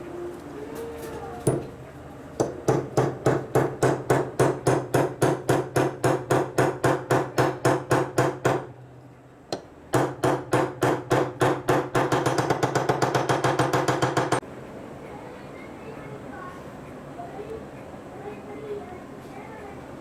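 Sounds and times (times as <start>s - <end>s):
hammer striking metal: 2.4s - 8.7s, 9.5s - 14.4s.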